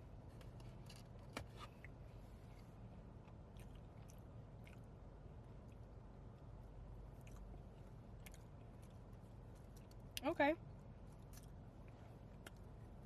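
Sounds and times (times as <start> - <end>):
low steady hum: 0.0 - 13.0
person chewing cookie: 3.2 - 10.2, 11.0 - 13.0.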